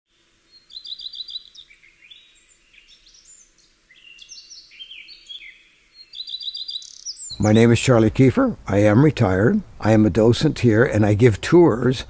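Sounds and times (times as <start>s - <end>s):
small songbirds singing: 0.1s - 7.8s.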